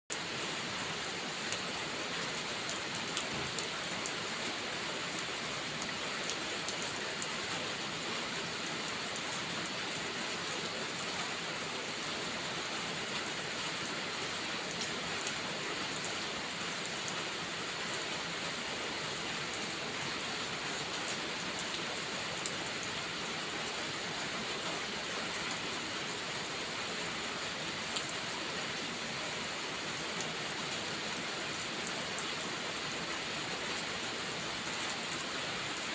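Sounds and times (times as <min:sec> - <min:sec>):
rain pattering on a surface: 0:00.1 - 0:35.9.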